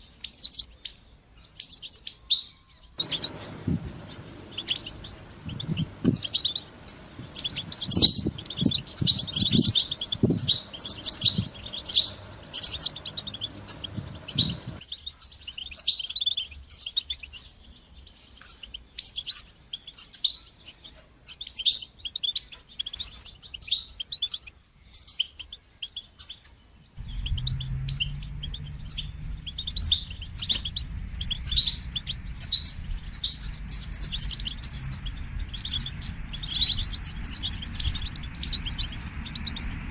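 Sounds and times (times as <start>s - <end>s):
bird twittering: 0.0s - 17.6s, 27.0s - 39.9s
low hum: 3.0s - 14.8s, 27.0s - 39.9s.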